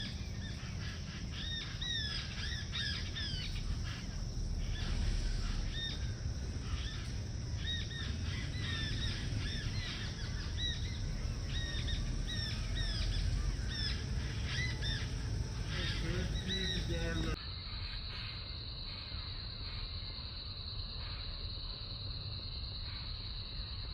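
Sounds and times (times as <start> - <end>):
birds chirping: 0.0 - 17.4
steady low rumble: 0.0 - 17.4.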